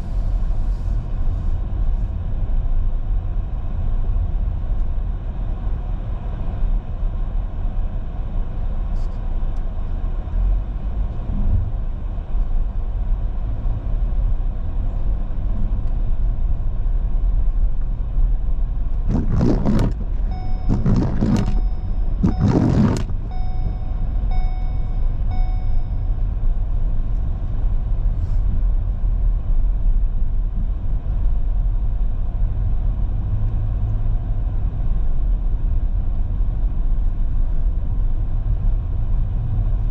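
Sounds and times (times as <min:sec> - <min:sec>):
car driving rumble: 0:00.0 - 0:39.9
loud rushing bursts: 0:19.1 - 0:21.6
short beeps: 0:19.1 - 0:26.4.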